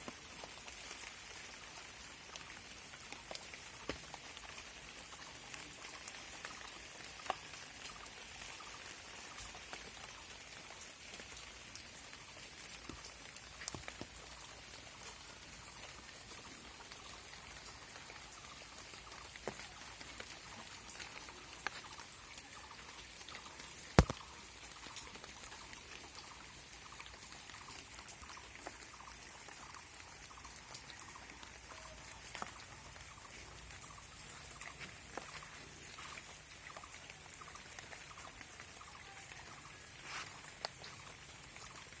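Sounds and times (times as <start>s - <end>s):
rain falling: 0.0s - 42.0s
heavy raindrops tapping: 16.8s - 25.8s.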